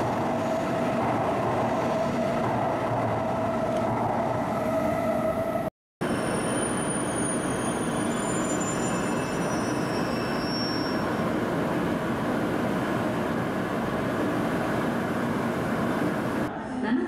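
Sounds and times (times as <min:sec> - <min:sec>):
train rumbling: 0:00.0 - 0:16.8.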